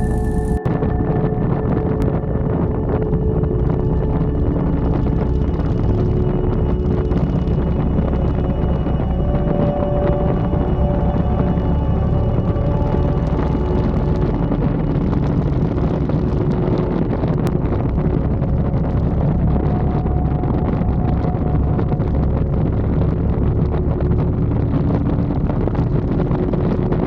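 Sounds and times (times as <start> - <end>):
motorcycle engine running: 0.0 - 0.6
wind buffeting microphone: 0.0 - 27.0.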